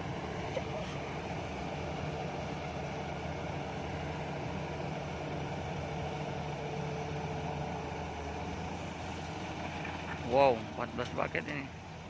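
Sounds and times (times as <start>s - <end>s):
diesel machinery idling: 0.0s - 12.0s.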